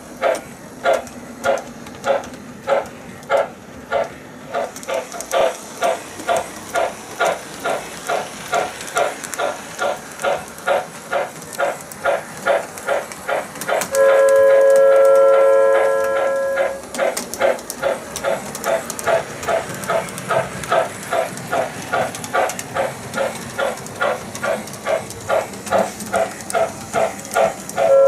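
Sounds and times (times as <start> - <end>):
model locomotive chuffing with hiss: 0.0 - 28.0
steam whistle blowing: 13.9 - 16.8.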